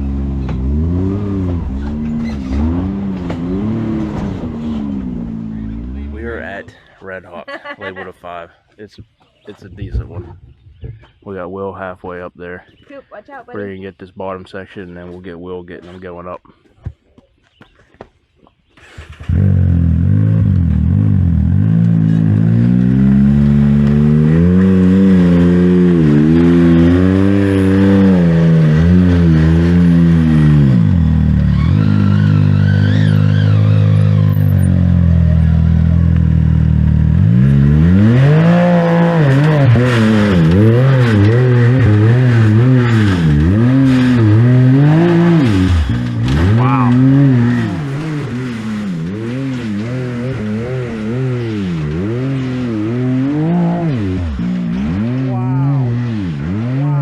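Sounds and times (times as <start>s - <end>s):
utv engine revving: 0.0s - 6.8s, 18.7s - 57.0s.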